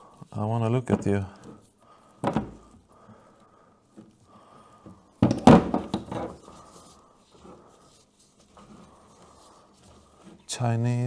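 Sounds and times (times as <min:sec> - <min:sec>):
heavy breathing: 0:00.0 - 0:00.3, 0:01.3 - 0:05.2, 0:06.4 - 0:10.5.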